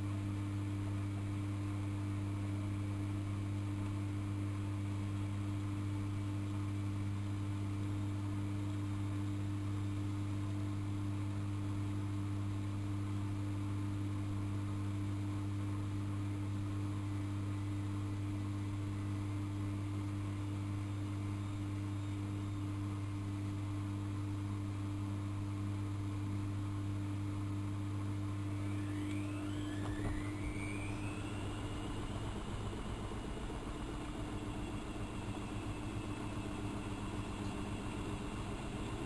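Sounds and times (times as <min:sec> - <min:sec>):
washing machine hum: 0:00.0 - 0:39.0
washing machine motor whine: 0:00.0 - 0:39.0.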